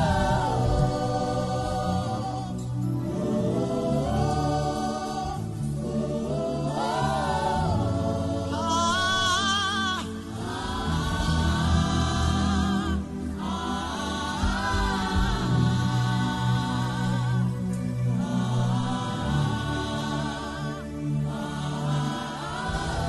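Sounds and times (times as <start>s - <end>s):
held low chords: 0.0s - 9.4s, 10.1s - 23.0s.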